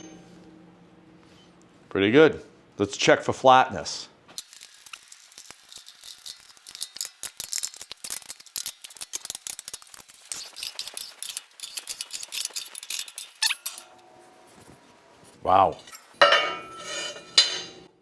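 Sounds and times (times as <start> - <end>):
metallic clicks and rattles: 4.4 - 13.9.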